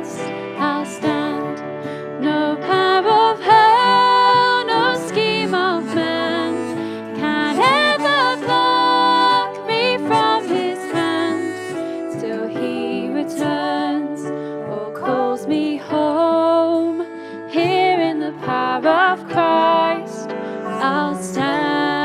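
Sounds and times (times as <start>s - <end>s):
sustained keyboard chords: 2.8s - 14.1s
wavering melody with vibrato: 4.6s - 13.4s, 20.6s - 22.0s.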